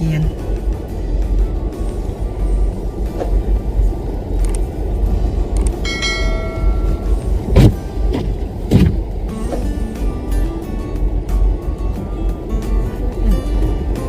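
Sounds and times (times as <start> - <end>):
vehicle engine rumbling: 0.0 - 14.0
sharp thump: 7.5 - 9.6.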